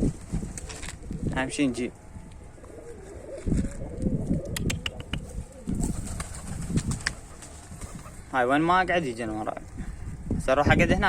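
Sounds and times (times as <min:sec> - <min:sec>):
pigeons cooing: 0:00.0 - 0:08.6
pigeons clicking: 0:04.3 - 0:08.6.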